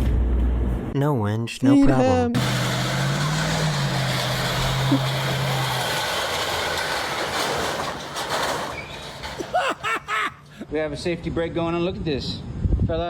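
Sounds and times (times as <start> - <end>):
mechanical hum: 2.4 - 9.6.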